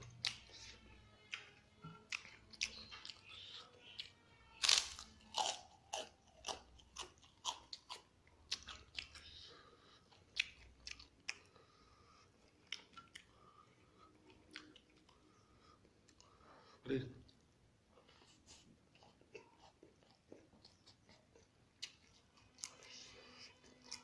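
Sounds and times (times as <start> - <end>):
person chewing crunchy food: 0.0 - 16.4, 18.0 - 24.0.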